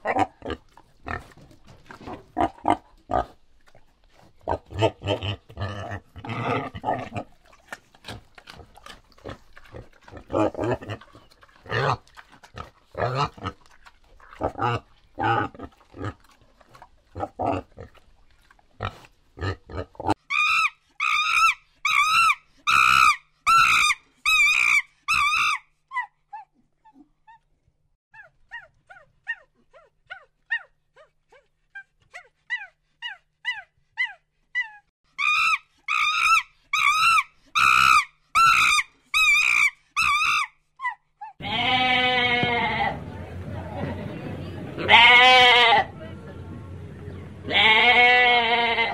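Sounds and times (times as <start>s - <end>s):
warthog grunting: 4.4s - 7.4s, 8.0s - 16.3s.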